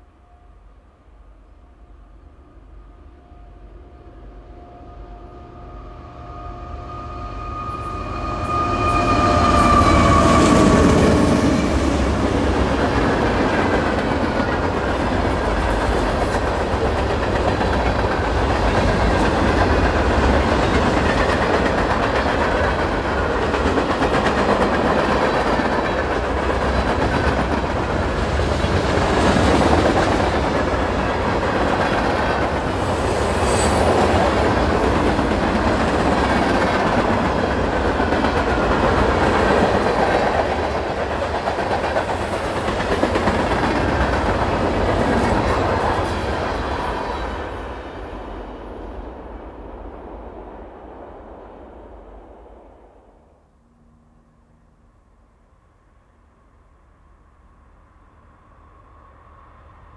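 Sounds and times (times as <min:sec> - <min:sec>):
diesel locomotive whine: 0:00.0 - 0:59.9
freight cars rumbling on rails: 0:05.7 - 0:50.5.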